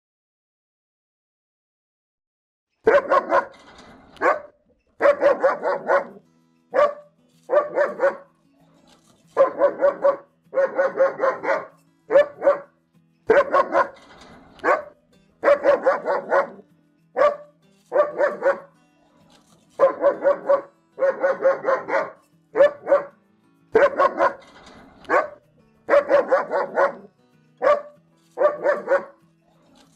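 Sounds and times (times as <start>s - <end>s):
dog barking: 2.8s - 3.6s, 4.2s - 8.3s, 9.4s - 12.7s, 13.3s - 14.0s, 14.6s - 16.6s, 17.2s - 18.7s, 19.8s - 24.4s, 25.0s - 29.2s.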